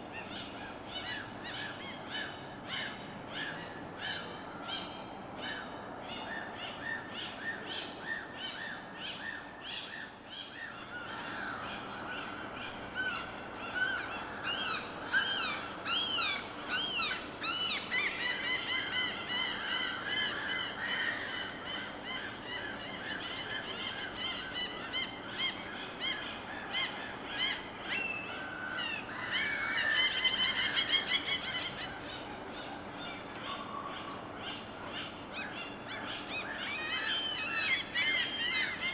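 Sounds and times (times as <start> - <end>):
birds calling: 10.6 - 38.9.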